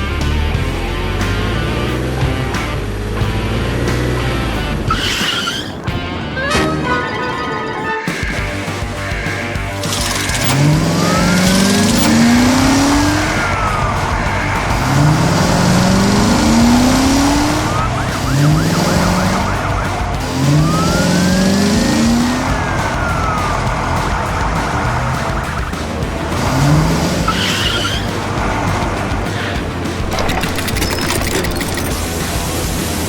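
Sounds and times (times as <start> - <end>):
cartoon engines revving: 0.0 - 33.0
siren wail: 6.4 - 8.4, 10.4 - 25.1.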